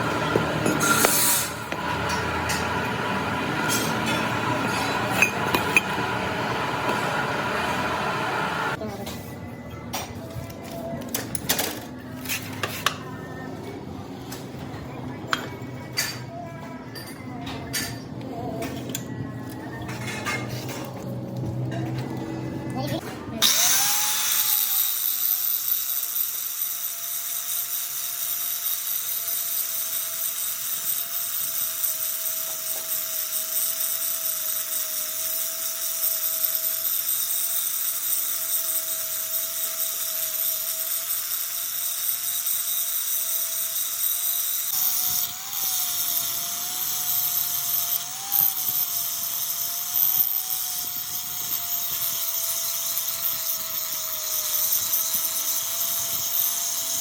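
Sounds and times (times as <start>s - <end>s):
power tool whining: 0.0s - 8.8s, 23.4s - 57.0s.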